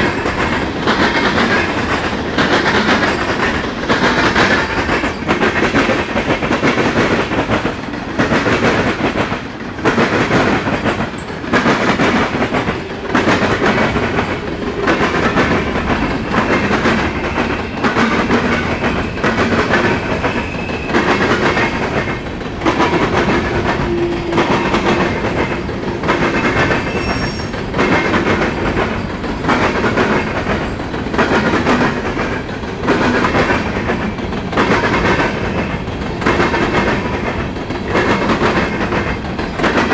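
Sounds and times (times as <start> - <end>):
train wheels clattering over rail joints: 0.0 - 39.9
metallic squeal from train cars: 4.5 - 5.6, 19.8 - 21.4, 23.7 - 29.5.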